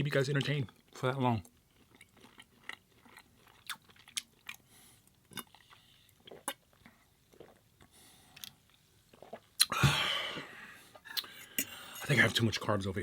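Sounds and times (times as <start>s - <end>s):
chewing food: 0.4s - 9.7s.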